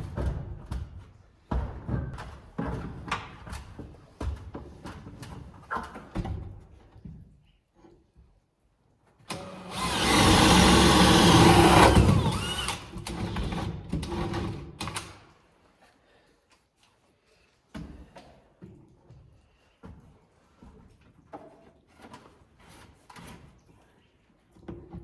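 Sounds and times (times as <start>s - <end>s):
power tool motor running: 9.3s - 14.4s.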